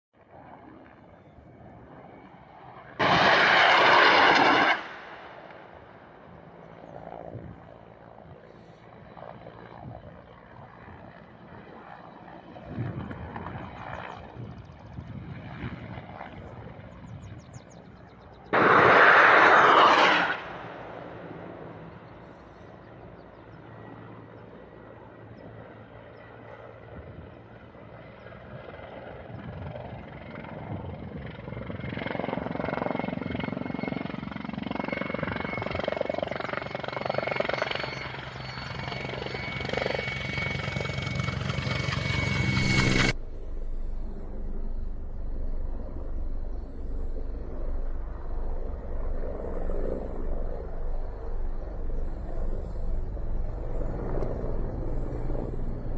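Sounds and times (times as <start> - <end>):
helicopter turbine and rotor: 0.2 - 55.9
loud rushing burst: 3.0 - 5.3, 18.6 - 21.0.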